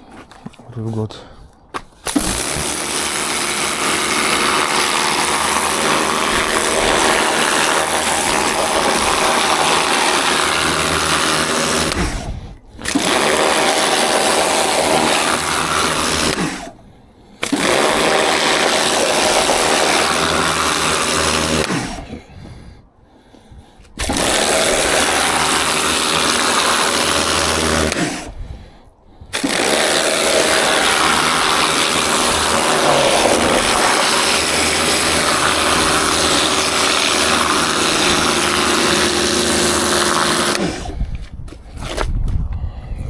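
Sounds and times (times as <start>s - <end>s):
pressure washer spraying water: 2.0s - 12.0s, 29.3s - 40.9s.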